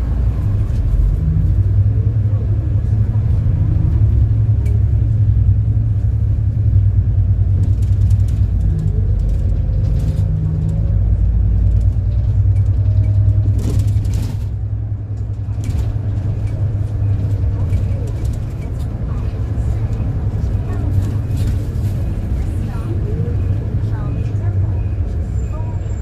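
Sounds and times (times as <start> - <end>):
bus engine rumble: 0.0 - 26.0.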